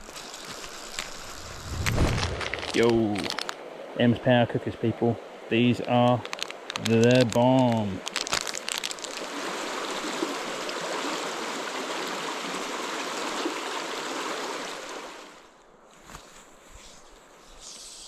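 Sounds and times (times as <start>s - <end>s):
river water rushing: 9.1s - 15.5s.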